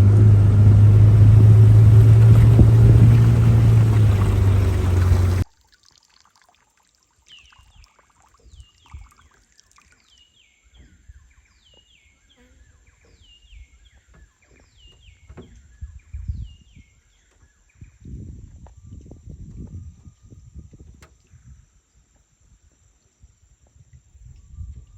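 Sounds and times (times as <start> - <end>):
low rumbles and thumps: 0.0 - 5.4, 13.1 - 16.7.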